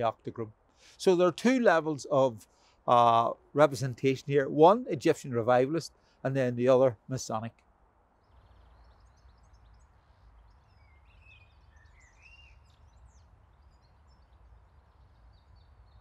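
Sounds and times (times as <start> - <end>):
small birds chirping: 7.4 - 16.0.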